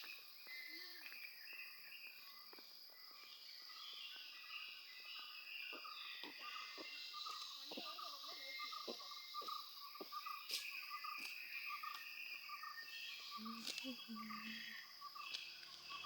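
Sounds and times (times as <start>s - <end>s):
insects buzzing: 3.2s - 16.0s
birds chirping and whistling: 3.7s - 16.0s.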